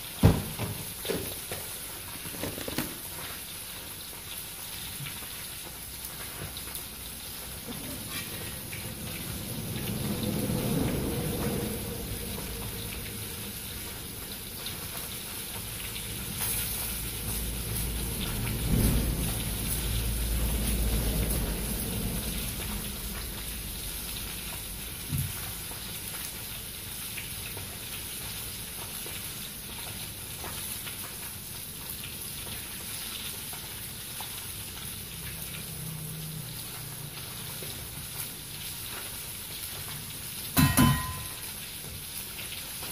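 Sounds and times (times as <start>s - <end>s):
fish deep-frying in oil: 0.0s - 42.9s
low rumbles: 8.3s - 14.2s.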